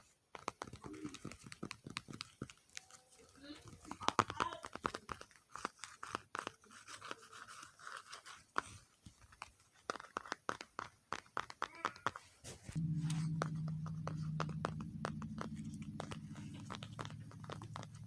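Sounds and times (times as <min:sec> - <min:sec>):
low steady hum: 0:12.7 - 0:18.0
tapping and clicking on objects: 0:13.0 - 0:18.0.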